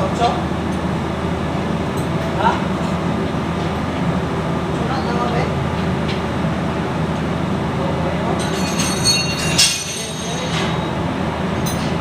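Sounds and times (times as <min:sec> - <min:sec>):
low mechanical hum: 0:00.0 - 0:12.0
sharp metallic clank: 0:08.4 - 0:10.9.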